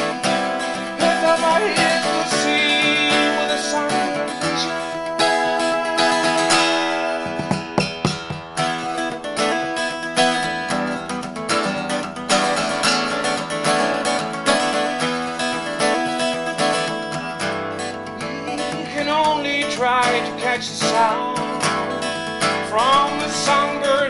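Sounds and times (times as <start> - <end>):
strummed acoustic guitar: 0.0 - 24.0.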